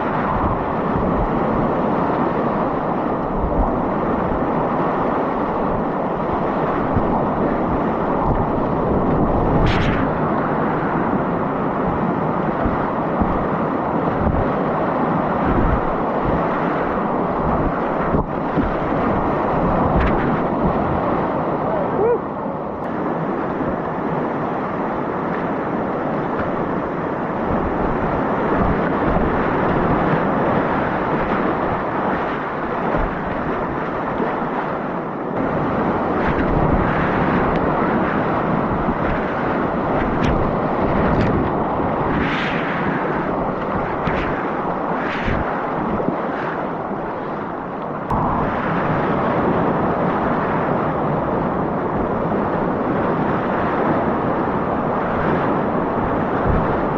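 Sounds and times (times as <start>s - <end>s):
river whitewater rushing: 0.0s - 51.5s
wind on microphone: 0.0s - 56.9s.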